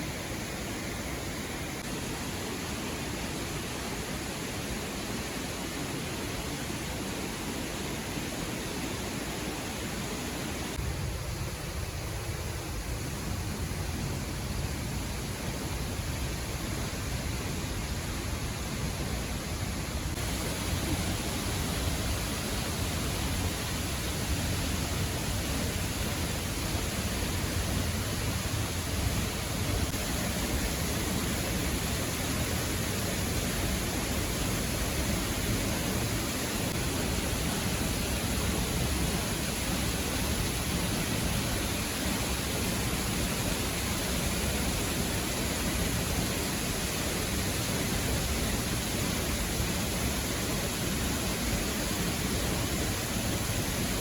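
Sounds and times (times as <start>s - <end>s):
waterfall rushing: 20.0s - 54.0s.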